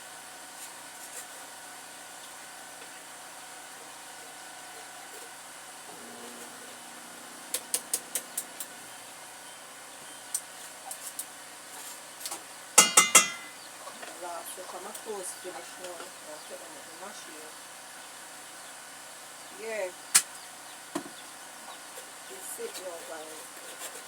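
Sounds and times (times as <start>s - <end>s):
clicks: 7.5s - 8.8s
loud ringing knocks: 12.8s - 13.6s.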